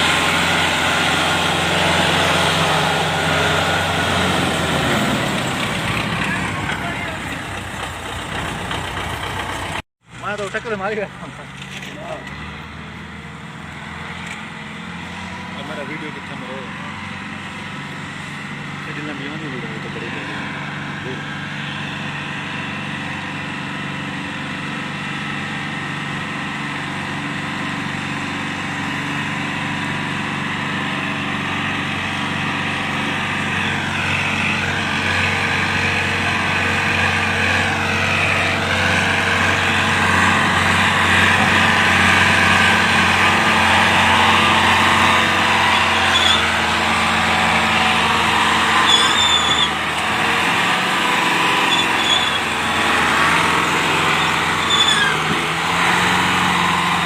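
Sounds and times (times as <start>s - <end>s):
tractor diesel engine running: 0.0s - 57.0s
short high squeaks: 45.7s - 46.6s, 48.7s - 49.8s, 51.5s - 52.6s, 54.0s - 55.4s.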